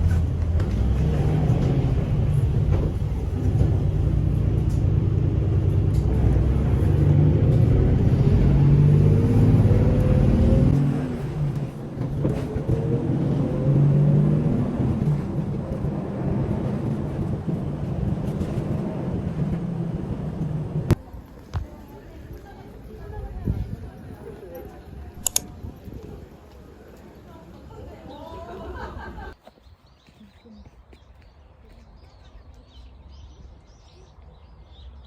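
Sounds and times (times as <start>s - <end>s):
light vehicle running sound: 0.0s - 25.7s
vehicle engine rumbling: 0.0s - 27.6s.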